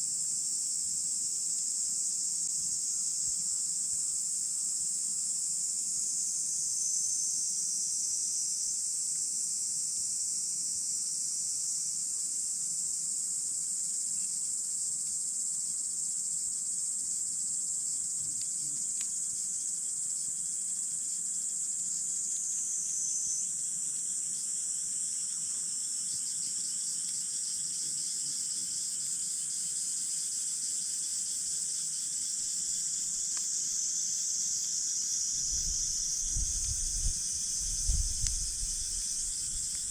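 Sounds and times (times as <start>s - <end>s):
high-pitched insects chirping: 13.2s - 39.9s
faint campfire crackles: 18.1s - 20.4s.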